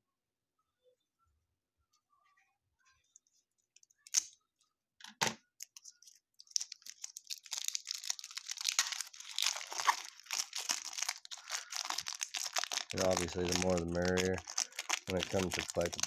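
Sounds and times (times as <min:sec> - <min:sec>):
wrapper crinkling and tearing: 0:05.6 - 0:16.0.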